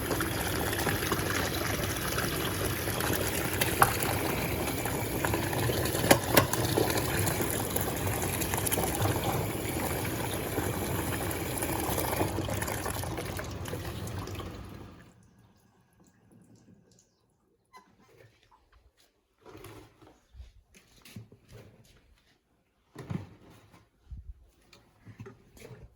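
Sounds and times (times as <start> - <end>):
water gushing into washing machine: 0.0 - 16.8.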